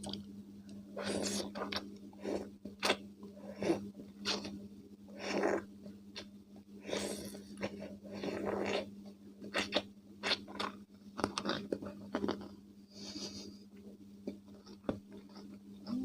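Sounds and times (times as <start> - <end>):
chewing crunchy cucumber: 3.6 - 4.6, 6.9 - 12.5.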